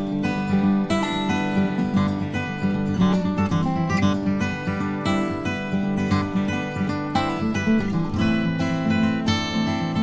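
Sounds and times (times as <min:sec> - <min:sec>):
acoustic guitar music: 0:00.0 - 0:10.0.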